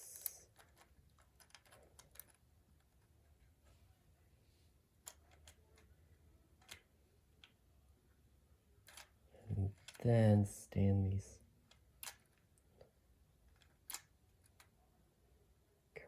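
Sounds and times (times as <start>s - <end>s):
plastic toy parts clicking: 0.0s - 3.1s, 5.0s - 6.0s, 6.6s - 7.6s, 8.8s - 10.0s, 11.7s - 12.6s, 13.4s - 14.8s.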